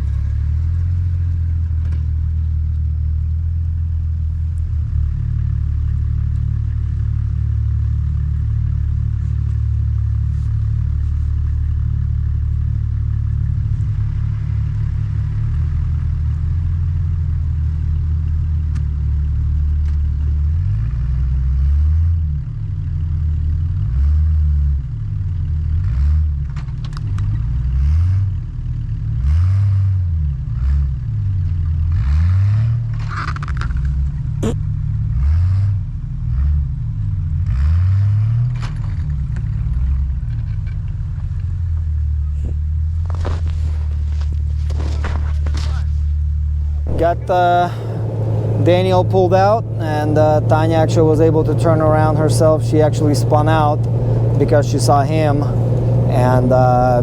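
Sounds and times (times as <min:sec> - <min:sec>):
engine running and revving: 0:00.0 - 0:57.0
sharp clicks and clatter: 0:26.4 - 0:27.4, 0:32.9 - 0:34.2.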